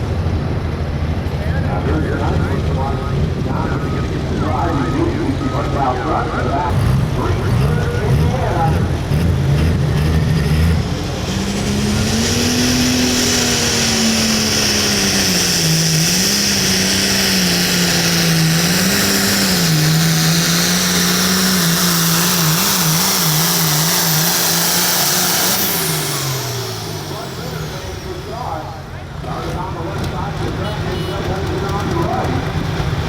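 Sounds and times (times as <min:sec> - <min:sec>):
diesel tractor engine at high revs: 0:00.0 - 0:33.0.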